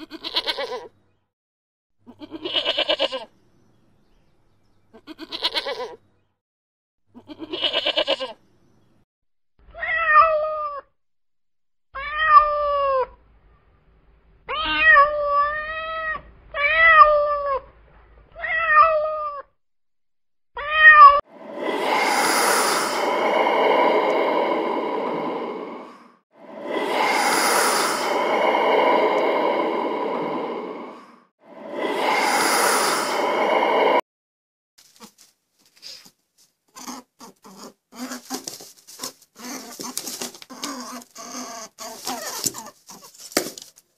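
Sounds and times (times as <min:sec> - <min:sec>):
goat bleating: 0:00.0 - 0:00.9, 0:02.1 - 0:03.3, 0:05.0 - 0:06.0, 0:07.2 - 0:08.4
rushing breath-like sounds: 0:21.3 - 0:34.0.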